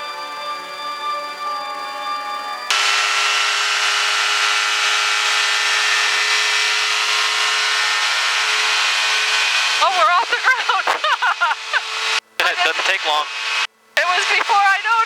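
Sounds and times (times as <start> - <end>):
hiss: 2.7 - 10.1
aircraft engine and propeller drone: 2.7 - 15.0.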